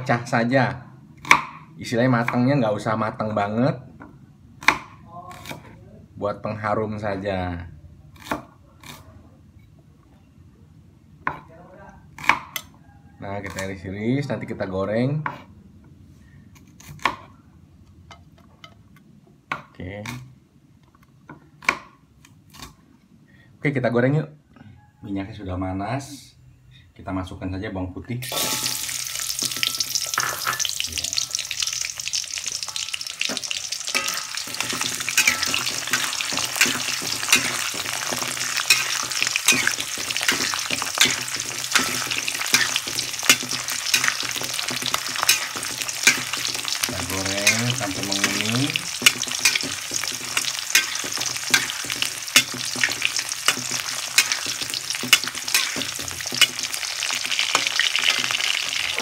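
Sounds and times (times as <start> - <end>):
garlic sizzling in hot oil: 28.2 - 59.0
spatula scraping a wok: 28.3 - 59.0.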